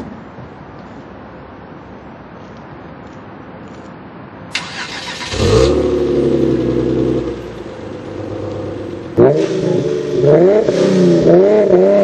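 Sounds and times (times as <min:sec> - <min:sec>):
car engine revving and idling: 0:04.6 - 0:12.0.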